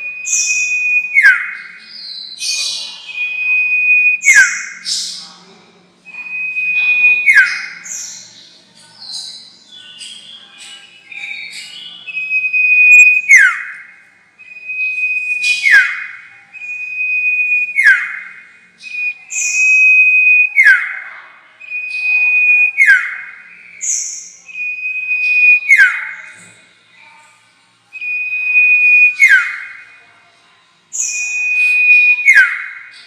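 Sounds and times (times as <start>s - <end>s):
bird lure whistle: 12.1s - 13.7s, 18.8s - 20.9s, 21.6s - 26.1s, 28.0s - 29.6s, 31.0s - 32.7s.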